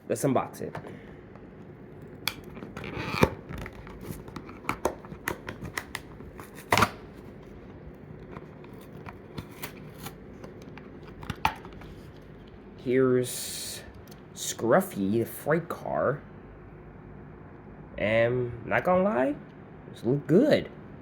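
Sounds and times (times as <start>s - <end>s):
packaging rustling and tearing: 2.4s - 12.2s.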